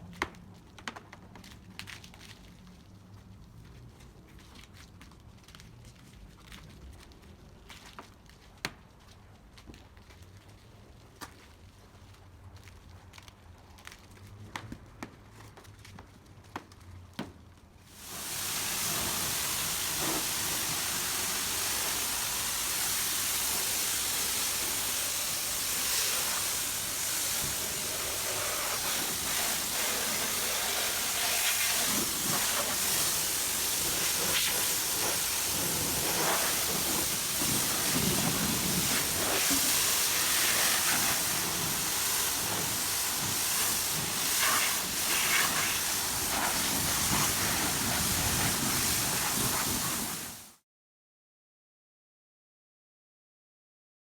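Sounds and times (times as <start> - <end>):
pressure washer spraying water: 18.0 - 50.5.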